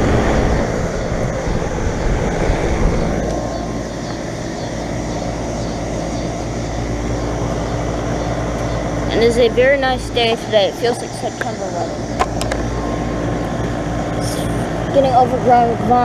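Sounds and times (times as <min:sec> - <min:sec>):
compressor hum: 0:00.0 - 0:16.0
condenser fan whoosh: 0:00.0 - 0:16.0.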